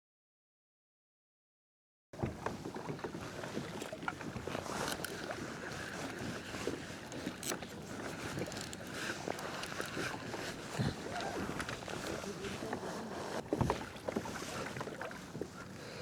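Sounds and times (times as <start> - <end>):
water splashing against hull: 2.2 - 16.0
small knocks and clicks: 3.8 - 5.3, 6.7 - 10.2.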